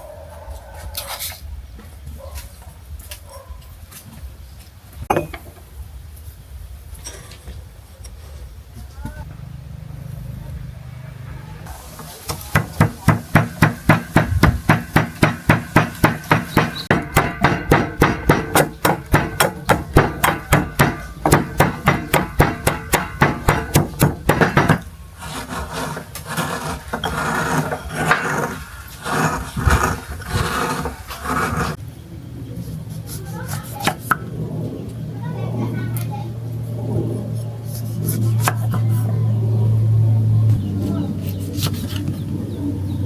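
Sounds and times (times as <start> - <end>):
knife chopping on wooden board: 12.3 - 24.8
knife scraping on board: 16.0 - 31.8.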